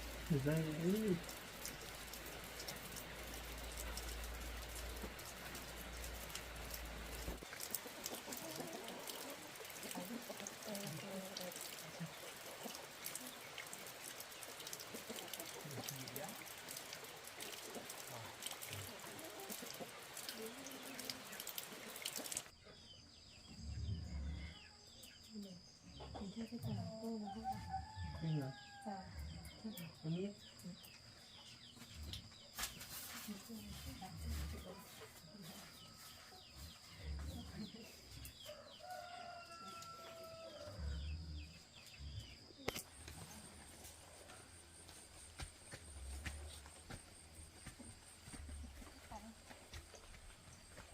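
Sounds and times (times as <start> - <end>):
running water splashing: 0.0 - 22.5.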